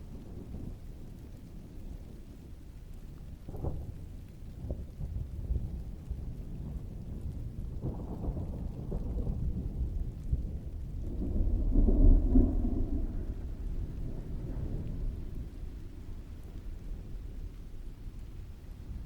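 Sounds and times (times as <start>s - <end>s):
heavy rain: 0.0s - 19.0s
distant thunder rolling: 4.6s - 19.0s.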